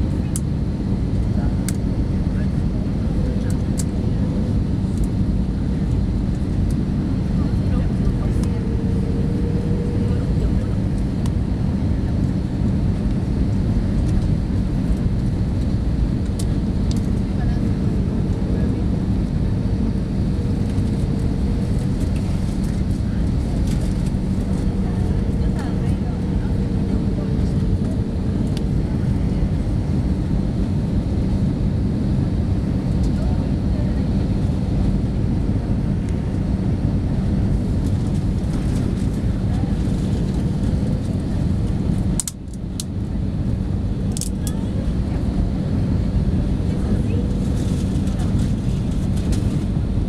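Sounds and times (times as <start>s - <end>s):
airplane cabin engine drone: 0.0s - 50.0s
low steady hum: 0.0s - 50.0s.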